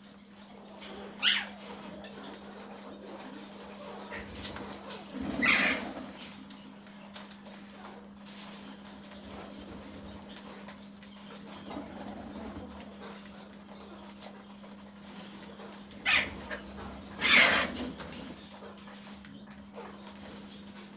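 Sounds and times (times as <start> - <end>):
parakeet screeches: 1.2 - 1.6, 5.2 - 5.9, 16.0 - 17.9.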